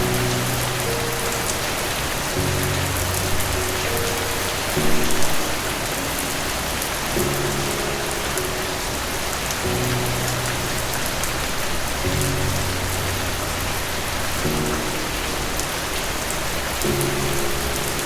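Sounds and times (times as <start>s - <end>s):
rain hissing and pattering: 0.0s - 18.0s
soft sustained music chords: 0.0s - 18.0s.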